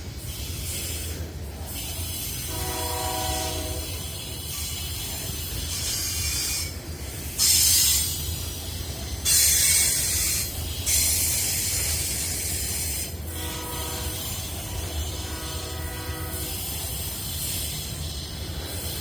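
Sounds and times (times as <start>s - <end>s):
train rumbling past: 0.0s - 19.0s
high hiss bursts: 3.5s - 19.0s.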